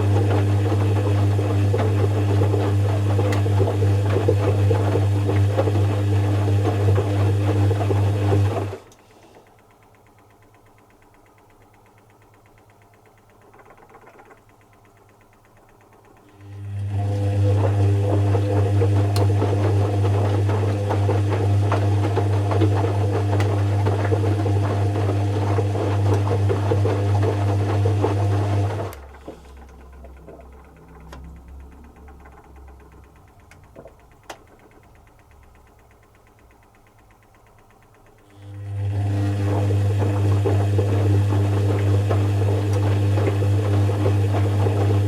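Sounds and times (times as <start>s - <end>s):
washing machine motor hum and rattle: 0.0s - 45.0s
washing machine clicks: 0.2s - 16.7s, 18.1s - 38.4s
drum coasting rumble: 29.5s - 38.2s.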